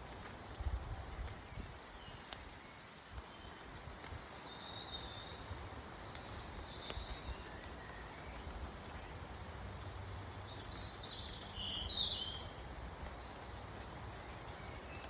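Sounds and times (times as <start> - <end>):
rain pattering: 0.0 - 15.0
water drips ticking: 5.9 - 11.7.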